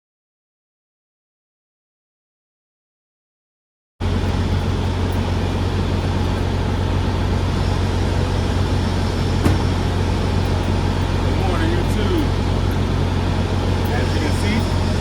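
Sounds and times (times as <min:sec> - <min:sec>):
truck engine droning: 0:04.0 - 0:15.0.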